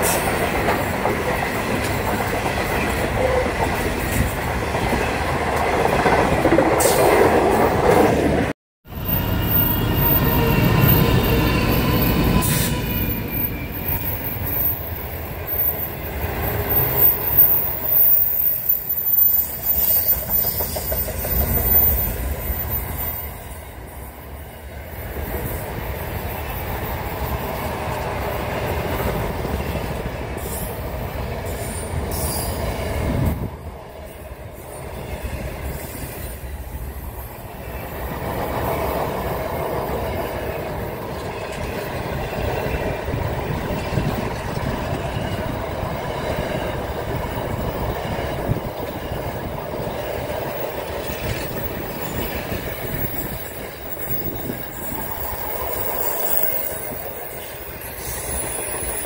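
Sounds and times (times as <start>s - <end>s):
train rumbling past: 0.0s - 59.0s.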